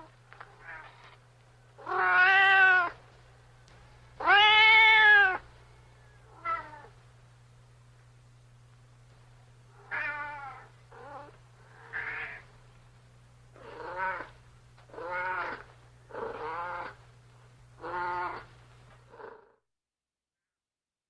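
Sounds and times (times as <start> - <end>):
steady low hum: 0.0 - 19.3
cat meowing: 1.8 - 3.0, 4.2 - 5.4, 6.3 - 6.9, 9.8 - 12.5, 13.6 - 15.7, 17.8 - 18.5.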